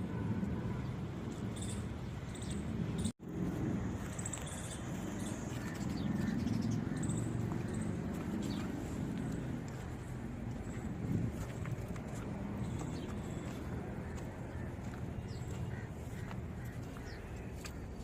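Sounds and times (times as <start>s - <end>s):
small birds chirping: 4.0s - 18.0s.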